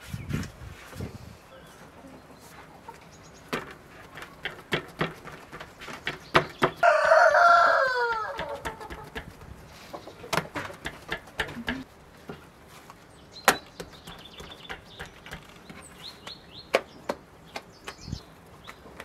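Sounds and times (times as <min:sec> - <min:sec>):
small birds chirping: 0:01.3 - 0:19.0
sharp taps and clicks: 0:08.2 - 0:09.4, 0:10.3 - 0:11.8.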